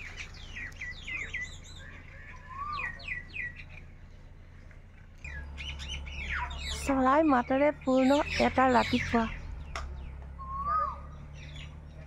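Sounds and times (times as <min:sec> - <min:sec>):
low slurred bird whistle: 0:00.0 - 0:03.6, 0:07.9 - 0:11.8
birds chirping: 0:00.0 - 0:12.0.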